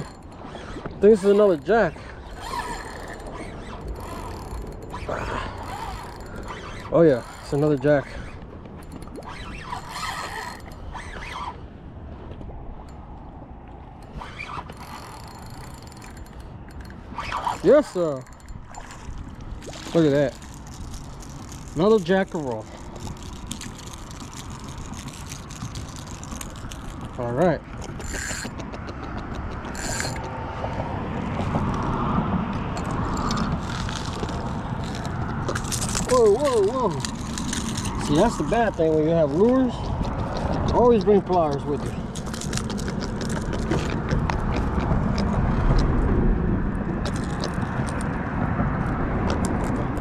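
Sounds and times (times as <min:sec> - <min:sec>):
fishing reel clicking and whirring: 0:00.0 - 0:11.6, 0:14.0 - 0:30.6, 0:32.8 - 0:44.5
short creaks: 0:00.0 - 0:46.2, 0:46.9 - 0:50.0.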